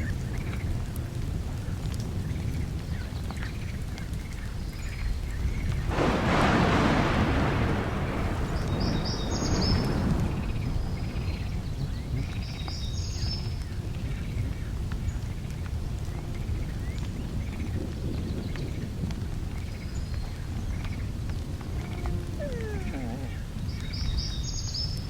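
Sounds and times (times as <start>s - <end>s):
birds chirping: 20.0s - 24.9s.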